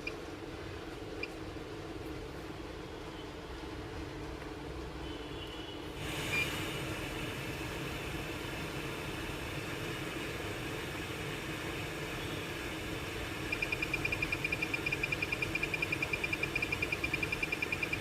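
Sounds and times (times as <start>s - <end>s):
breathing machine humming: 5.8s - 18.0s
airflow hiss: 5.9s - 13.5s
rapid high beeping: 13.5s - 18.0s.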